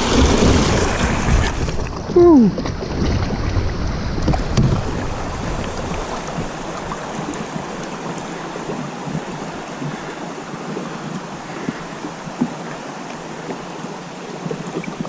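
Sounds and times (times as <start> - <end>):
river water rushing over rapids: 0.0 - 15.0
knocks on kayak: 4.2 - 5.0.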